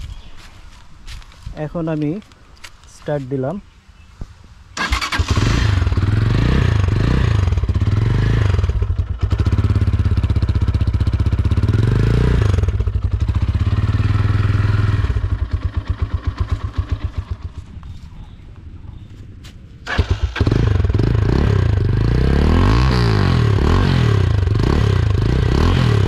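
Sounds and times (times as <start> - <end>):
motorcycle engine revving: 4.8 - 18.0, 19.8 - 26.0.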